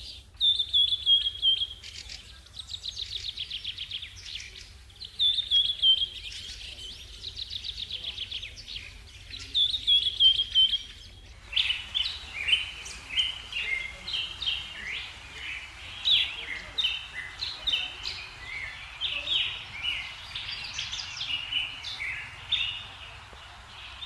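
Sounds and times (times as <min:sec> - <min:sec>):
birdsong with fast trills: 0:00.0 - 0:24.0
rough bird call: 0:07.4 - 0:24.0.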